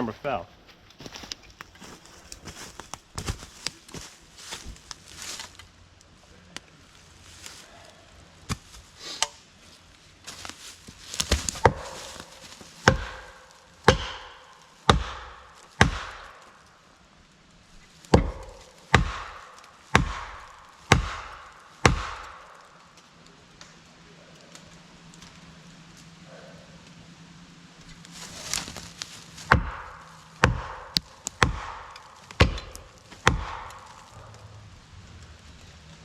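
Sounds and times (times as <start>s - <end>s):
steel tool striking wedge: 12.8s - 16.3s, 29.5s - 33.9s.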